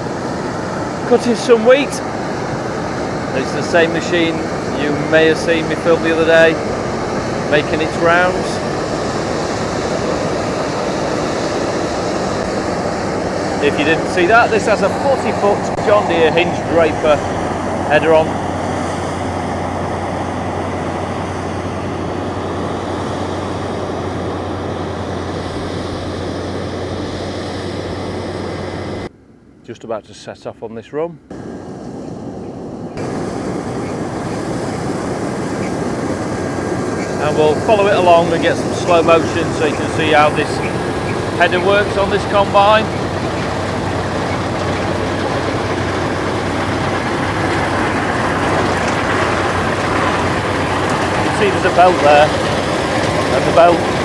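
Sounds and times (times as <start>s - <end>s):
combine harvester running: 0.0s - 29.1s, 31.3s - 54.0s.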